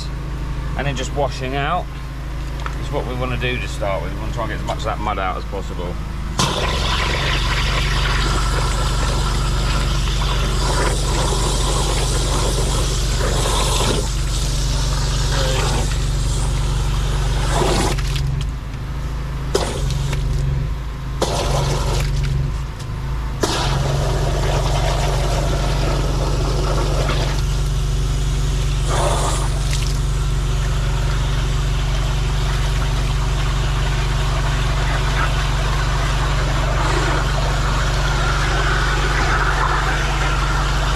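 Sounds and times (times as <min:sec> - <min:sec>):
engine running: 0:00.0 - 0:40.9
high-pressure water spray: 0:06.4 - 0:18.3, 0:19.5 - 0:20.4, 0:21.2 - 0:22.2, 0:23.4 - 0:40.9.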